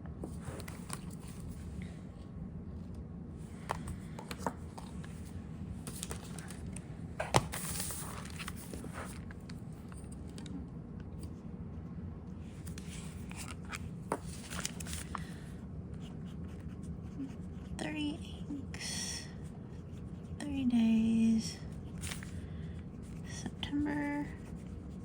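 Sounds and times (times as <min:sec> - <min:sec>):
steady low hum: 0:00.0 - 0:25.0
paper rustling: 0:03.7 - 0:09.6, 0:12.6 - 0:15.4.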